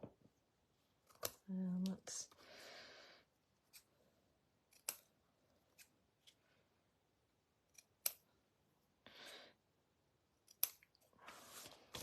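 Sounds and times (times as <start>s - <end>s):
scissors snipping paper: 4.6s - 6.0s.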